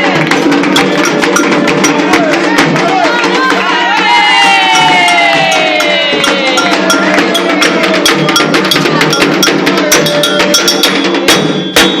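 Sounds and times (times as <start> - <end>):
hand drums fast rhythm: 0.0 - 12.0
ringing bell: 1.0 - 2.0, 4.7 - 12.0.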